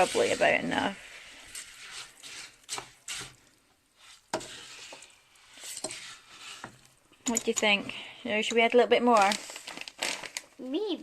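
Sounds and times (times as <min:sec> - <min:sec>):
spoon scraping and knocking pot: 0:00.0 - 0:03.4, 0:04.0 - 0:08.8
spoon stirring birdseed in lard: 0:00.0 - 0:09.5.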